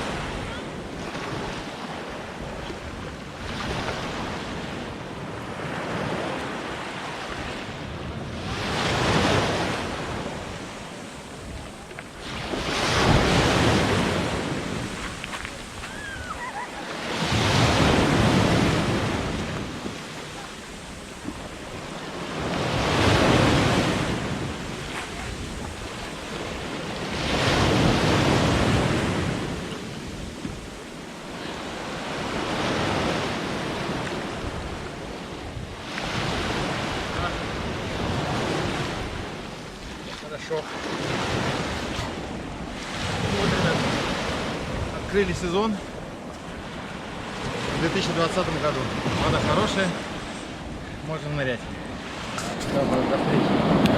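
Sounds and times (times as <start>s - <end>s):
waves breaking on shore: 0.0s - 53.9s
wind buffeting microphone: 7.4s - 33.0s.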